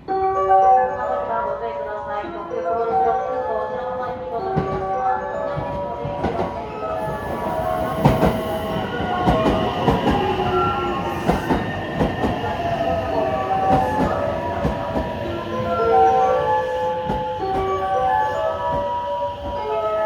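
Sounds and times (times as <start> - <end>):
train rolling rumble: 4.5 - 20.0
train wheels clacking over rail joints: 8.0 - 15.3.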